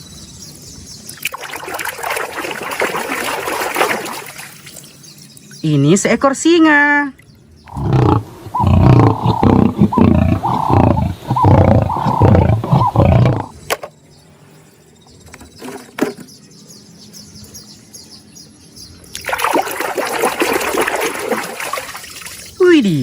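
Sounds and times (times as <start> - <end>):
lion roaring: 7.7 - 13.5.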